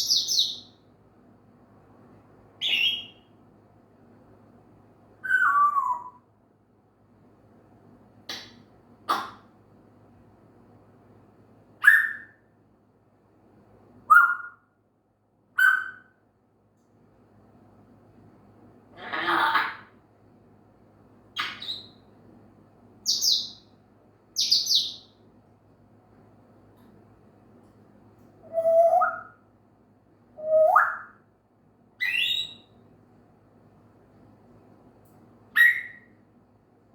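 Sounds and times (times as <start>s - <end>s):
parrot whistling calls: 2.6s - 3.2s, 5.2s - 6.2s, 11.8s - 12.4s, 14.1s - 14.6s, 15.6s - 16.1s, 21.4s - 22.0s, 28.4s - 29.4s, 30.4s - 31.2s, 32.0s - 32.7s, 35.6s - 36.1s.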